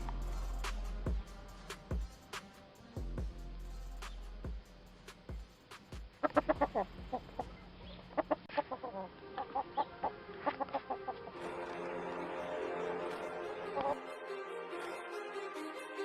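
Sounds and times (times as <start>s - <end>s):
chicken clucking: 6.2s - 11.8s.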